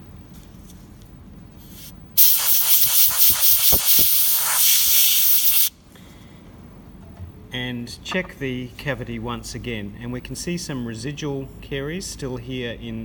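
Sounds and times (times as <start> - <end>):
air-water syringe hissing: 1.7 - 5.7.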